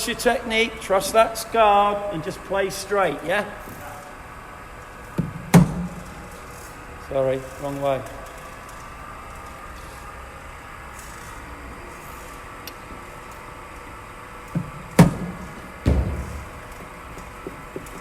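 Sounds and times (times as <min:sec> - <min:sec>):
low background hum: 0:00.0 - 0:18.0
cricket ball thump: 0:14.6 - 0:16.7
dull heavy thud: 0:14.6 - 0:17.0.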